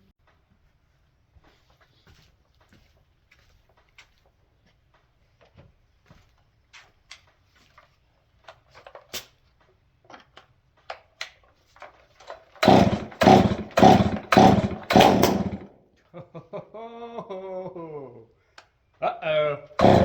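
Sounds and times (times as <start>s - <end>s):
chainsaw starter pulls: 10.1s - 15.7s, 19.8s - 20.0s.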